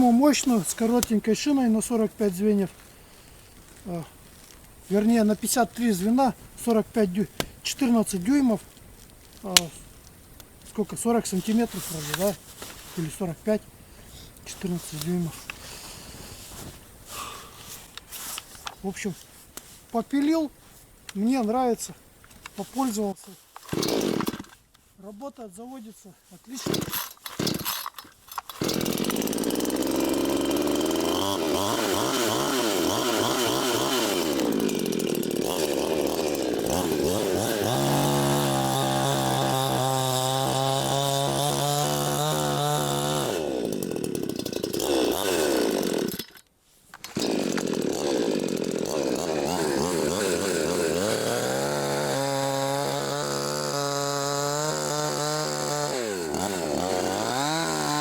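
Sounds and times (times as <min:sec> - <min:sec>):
chainsaw cutting wood: 0:11.4 - 0:12.4, 0:23.6 - 0:24.7, 0:26.5 - 0:58.0.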